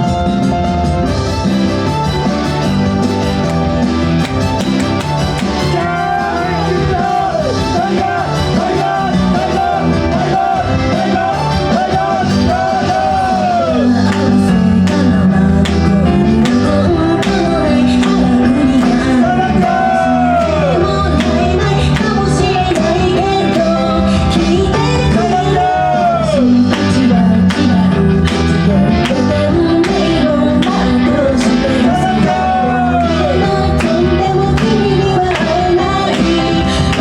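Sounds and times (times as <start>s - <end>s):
driving drum beat: 0.0s - 23.7s
bass: 0.0s - 37.0s
woman singing: 13.6s - 37.0s.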